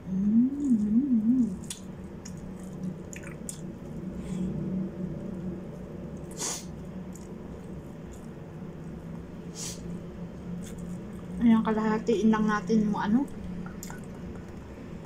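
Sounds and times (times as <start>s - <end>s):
person humming: 0.0s - 1.6s
soft chewing: 0.3s - 4.5s, 5.2s - 11.4s
breathy hiss: 6.3s - 6.8s, 9.5s - 9.9s.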